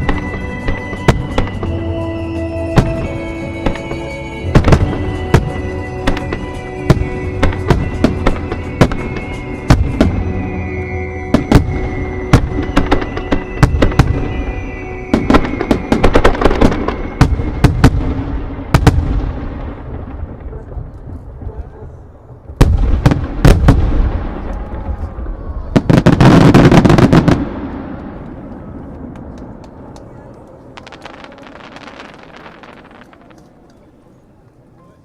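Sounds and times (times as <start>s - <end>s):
show music: 0.0s - 17.6s.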